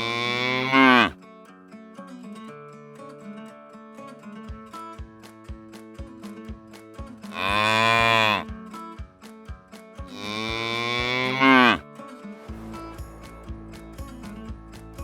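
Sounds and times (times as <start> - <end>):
cow mooing: 0.0 - 1.2, 7.4 - 8.5, 10.2 - 11.8
background music with a beat: 4.3 - 15.0.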